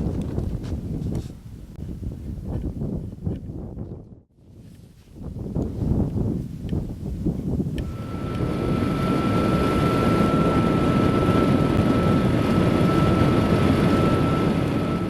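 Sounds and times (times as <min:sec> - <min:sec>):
wind rush: 0:00.0 - 0:15.0
steady high whine: 0:07.7 - 0:15.0.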